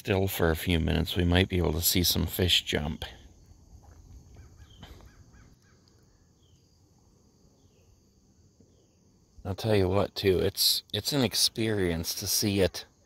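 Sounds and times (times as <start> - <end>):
faint bird calls: 3.8 - 6.8.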